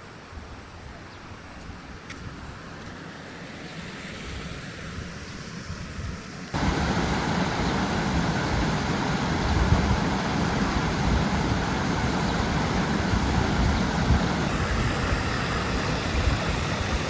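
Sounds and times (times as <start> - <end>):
river water rushing: 6.5 - 17.0.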